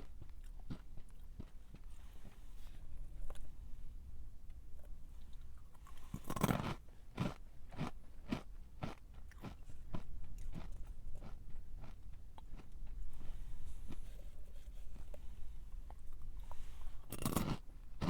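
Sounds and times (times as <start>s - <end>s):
crunchy chewing: 0.0s - 2.4s, 5.2s - 14.1s, 15.9s - 18.0s
crunchy snack bite: 6.1s - 8.4s, 17.1s - 17.6s.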